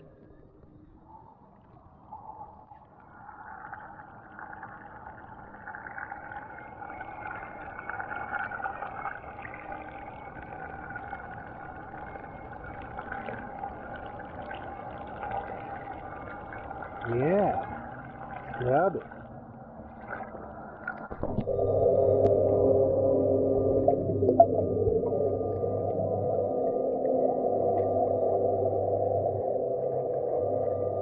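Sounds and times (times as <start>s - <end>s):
churning water: 3.3s - 26.1s
robotic pool cleaner motor whine: 21.2s - 31.0s.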